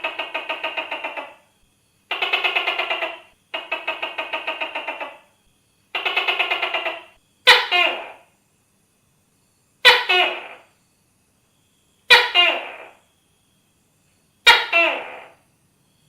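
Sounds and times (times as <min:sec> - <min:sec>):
gecko rattling call: 0:00.0 - 0:08.4, 0:09.8 - 0:10.8, 0:12.0 - 0:13.2, 0:14.4 - 0:15.6.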